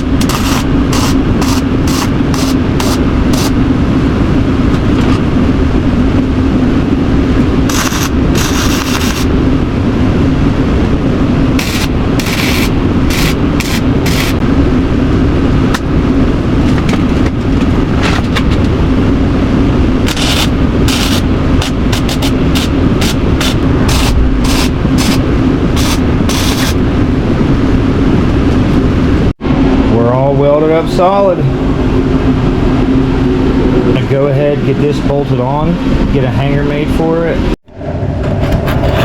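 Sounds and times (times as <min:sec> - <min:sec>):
welding arc crackling: 0:00.0 - 0:03.6, 0:07.4 - 0:09.4, 0:11.5 - 0:14.4, 0:20.0 - 0:27.0
steady low hum: 0:00.0 - 0:39.0.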